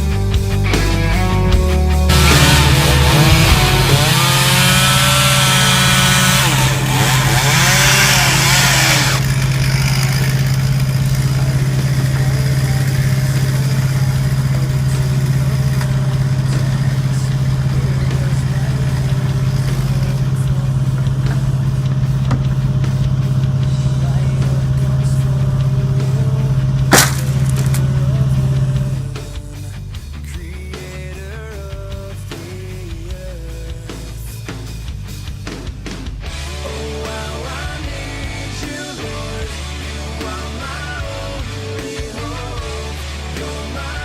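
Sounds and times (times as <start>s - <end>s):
engine running steadily: 0.0s - 29.7s.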